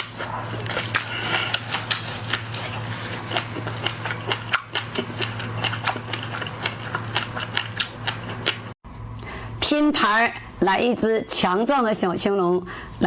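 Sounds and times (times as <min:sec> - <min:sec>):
crunching shell while chewing: 0:00.0 - 0:08.8.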